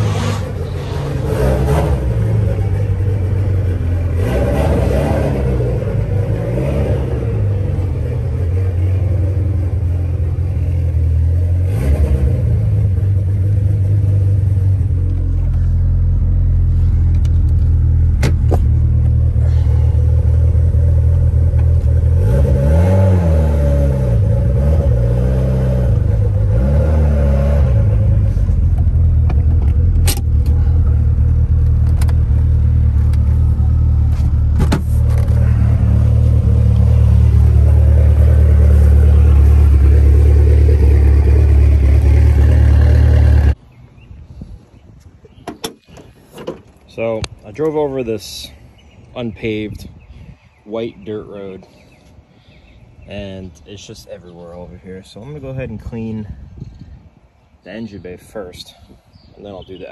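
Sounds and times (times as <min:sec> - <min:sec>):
car engine revving: 0:00.0 - 0:43.6.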